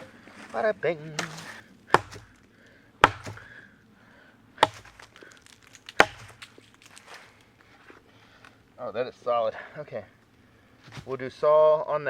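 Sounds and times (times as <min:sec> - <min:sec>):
axe chopping log: 0:01.2 - 0:03.6, 0:04.6 - 0:07.1.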